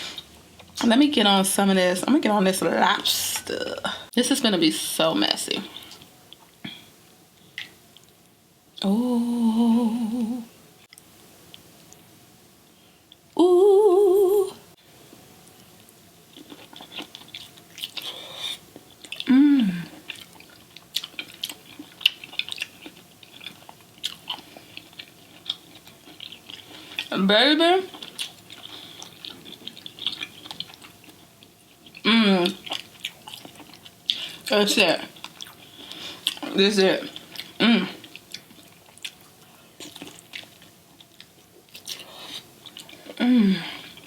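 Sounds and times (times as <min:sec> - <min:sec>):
pleased vocal hum: 0:08.8 - 0:10.5, 0:13.4 - 0:14.7, 0:19.3 - 0:19.9
wet chewing: 0:20.0 - 0:27.1, 0:27.9 - 0:34.4, 0:35.1 - 0:43.2
wet mouth chewing: 0:20.0 - 0:27.1, 0:27.9 - 0:31.2.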